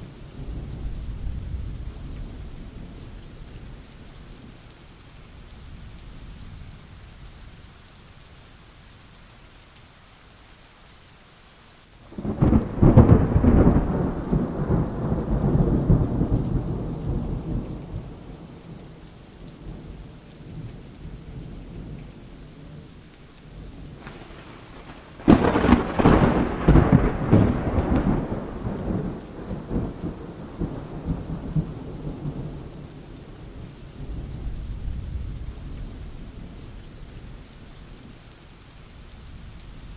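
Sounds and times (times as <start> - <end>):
steady rain: 0.0 - 39.9
thunder: 12.1 - 18.3, 23.8 - 32.7.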